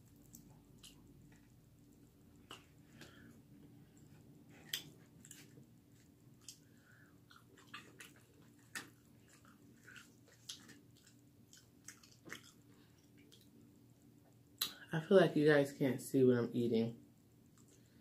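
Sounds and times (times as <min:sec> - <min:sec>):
chewing crispy chicken: 0:00.0 - 0:03.4, 0:04.5 - 0:13.6
faint low hum: 0:00.0 - 0:18.0.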